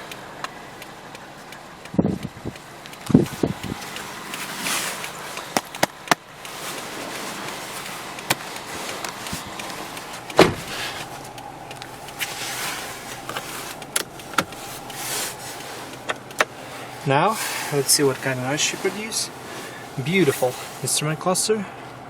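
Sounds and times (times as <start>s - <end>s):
car interior controls clicking: 0.0s - 21.0s
steady soft hiss: 0.0s - 22.0s.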